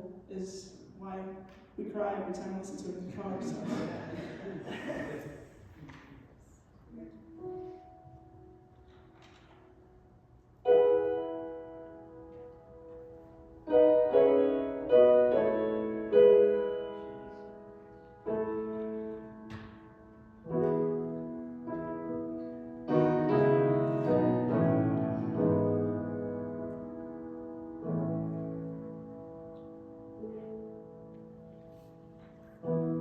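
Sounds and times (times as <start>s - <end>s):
piano playing slow chords: 7.1s - 33.0s.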